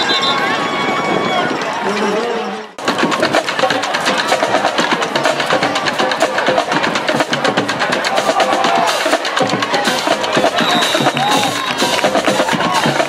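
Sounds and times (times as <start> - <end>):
bass drum: 2.8 - 13.0.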